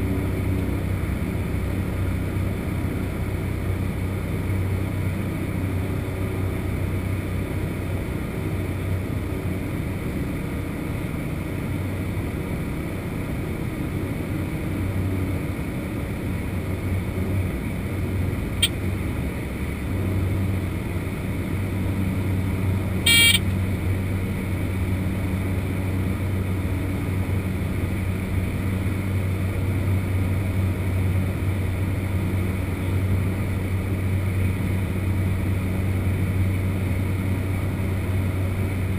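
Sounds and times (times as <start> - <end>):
turboprop engine drone: 0.0 - 38.9
short high beep: 23.1 - 23.4.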